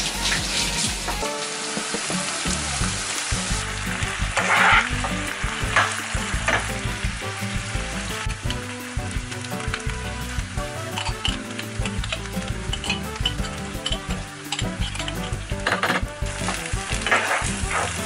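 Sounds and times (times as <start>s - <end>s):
meat sizzling in a wok: 0.0s - 18.0s
spatula scraping a pan: 4.3s - 6.7s, 12.7s - 18.0s.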